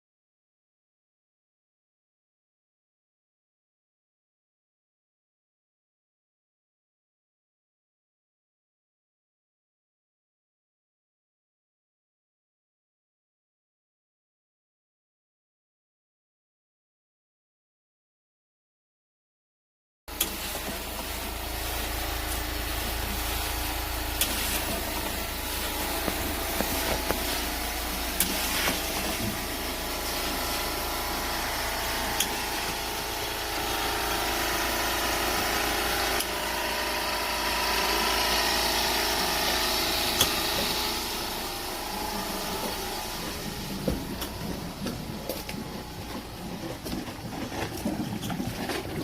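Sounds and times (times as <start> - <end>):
machine motor running: 20.1 - 49.0.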